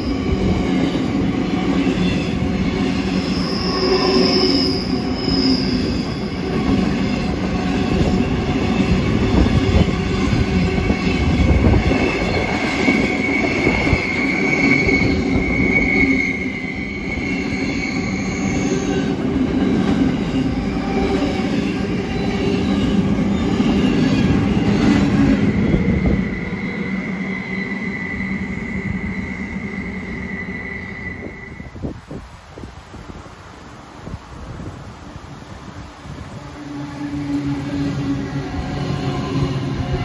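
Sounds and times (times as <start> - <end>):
high wheel squeal: 0.0 - 32.0.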